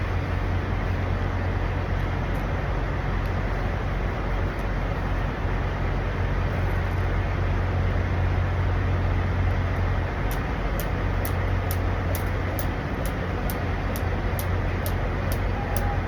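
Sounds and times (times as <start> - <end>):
diesel trucks idling: 0.0 - 16.0
traffic noise: 0.0 - 16.0
faint high ticking: 10.2 - 16.0.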